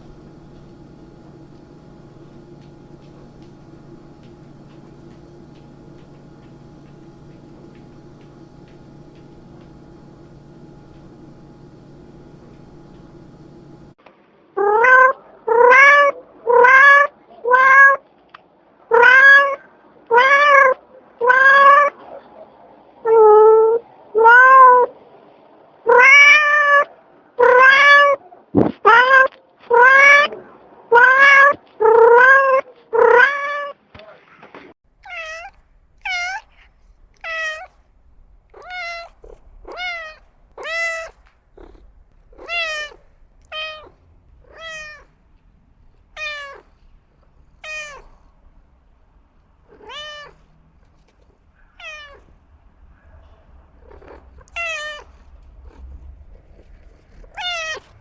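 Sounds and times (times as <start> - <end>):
cat meowing: 35.0 - 36.5, 38.6 - 45.1, 46.2 - 46.8, 47.6 - 48.2, 49.7 - 50.5, 51.7 - 52.3, 53.9 - 55.2, 57.3 - 57.9.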